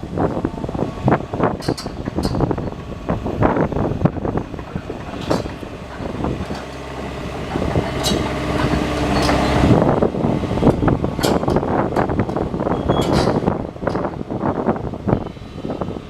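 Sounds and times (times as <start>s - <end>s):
diesel engine running: 0.0s - 16.0s
steady whine: 0.0s - 16.0s
metallic clanks and squeaks: 1.5s - 2.9s, 4.5s - 6.9s, 7.5s - 9.7s, 11.2s - 14.2s.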